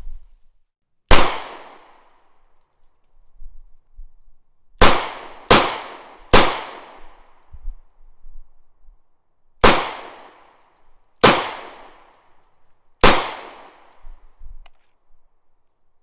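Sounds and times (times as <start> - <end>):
echoing gunshots: 1.1 - 2.1, 4.8 - 7.2, 9.6 - 10.5, 11.2 - 12.1, 13.0 - 13.9.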